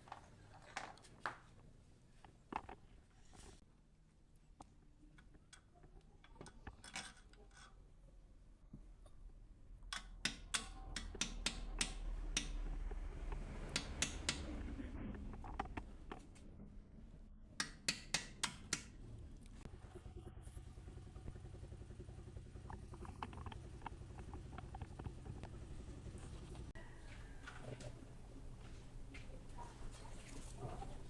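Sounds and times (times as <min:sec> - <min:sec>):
low steady hum: 0:08.0 - 0:31.0
hand tools clicking on metal: 0:09.9 - 0:16.2, 0:17.6 - 0:19.0.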